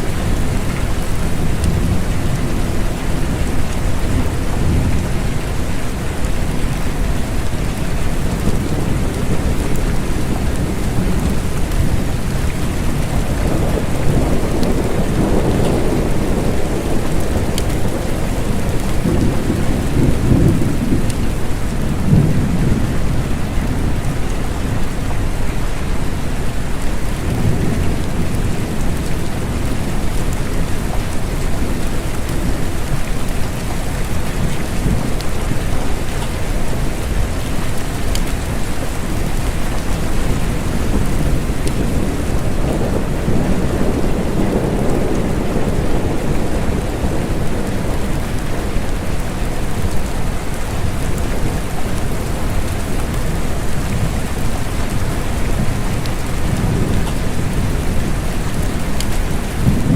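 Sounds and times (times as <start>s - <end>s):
steady rain: 0.0s - 59.9s
rolling thunder: 8.0s - 24.8s, 38.1s - 59.9s.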